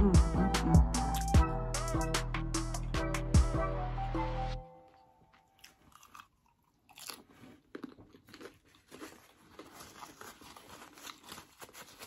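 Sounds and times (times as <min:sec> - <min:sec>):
crunching taco shell: 0:05.5 - 0:12.0.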